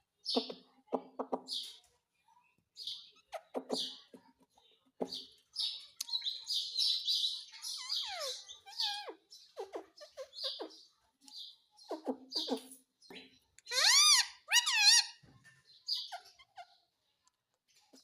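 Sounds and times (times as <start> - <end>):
parrot chirps and squawks: 3.0 - 4.0, 6.1 - 10.9, 11.8 - 12.8, 13.6 - 15.2, 15.9 - 16.9.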